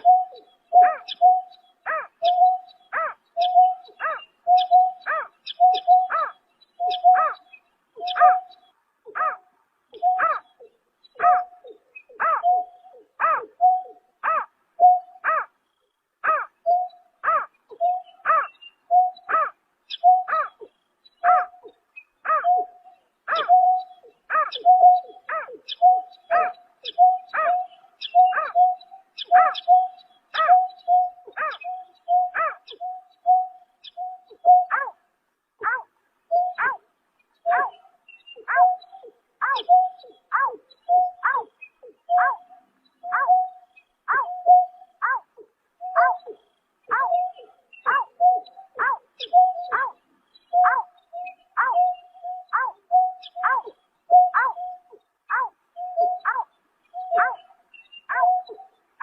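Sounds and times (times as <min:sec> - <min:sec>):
bird hooting call: 0:00.0 - 0:09.4, 0:10.0 - 0:15.5, 0:16.2 - 0:35.0, 0:37.5 - 0:58.7.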